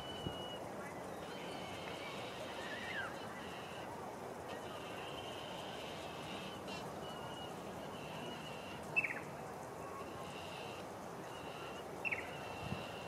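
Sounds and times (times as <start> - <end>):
steady background noise: 0.0 - 13.0
bird chirps: 6.1 - 12.7.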